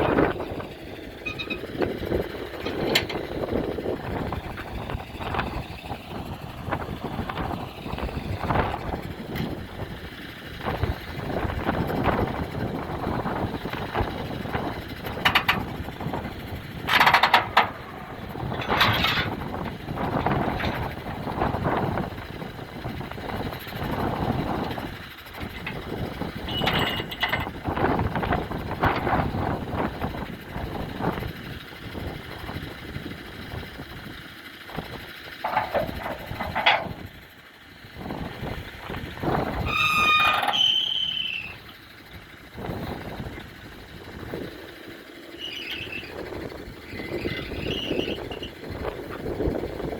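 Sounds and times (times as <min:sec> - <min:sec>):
truck engine and road noise: 0:00.0 - 0:49.9
sharp clatters: 0:16.8 - 0:21.4.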